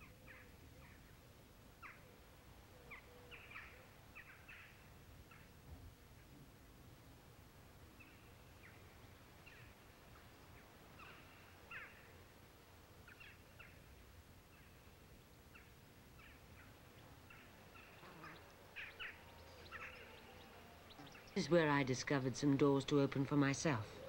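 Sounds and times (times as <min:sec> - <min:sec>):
faint bird chirps: 0:01.8 - 0:05.5, 0:07.9 - 0:12.2, 0:14.5 - 0:21.5.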